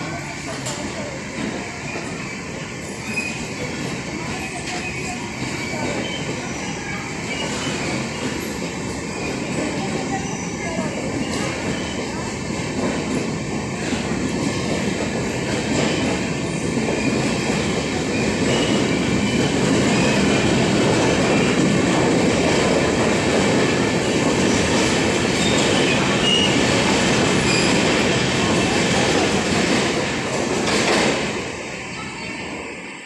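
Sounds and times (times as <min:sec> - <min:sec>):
train wheels rumbling on rails: 0:00.0 - 0:33.0
high wheel squeals: 0:27.4 - 0:27.9.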